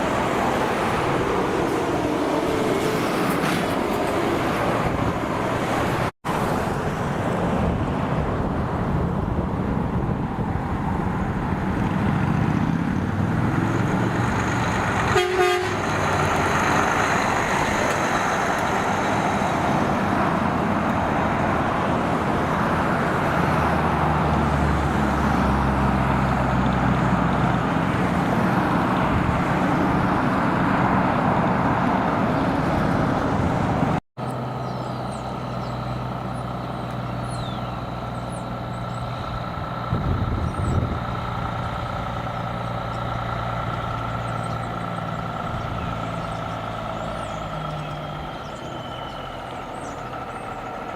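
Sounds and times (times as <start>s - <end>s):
heavy truck engine: 0.0s - 50.9s
low engine hum: 0.0s - 50.9s
road noise: 0.0s - 50.9s
short horn toot: 15.1s - 15.9s.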